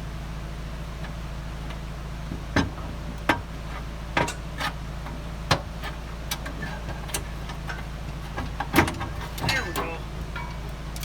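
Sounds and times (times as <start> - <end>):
pry bar clanking on metal: 2.6 - 11.0.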